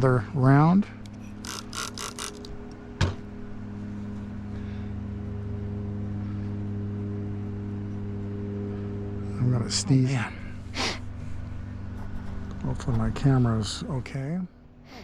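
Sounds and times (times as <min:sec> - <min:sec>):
steady low hum: 0:00.0 - 0:15.0
trigger sprayer hissing: 0:01.1 - 0:02.5.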